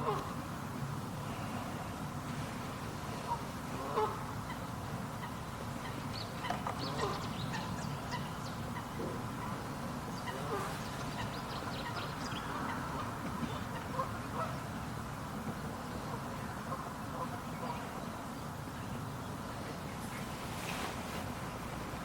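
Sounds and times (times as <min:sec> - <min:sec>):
birds calling: 0:04.0 - 0:14.7.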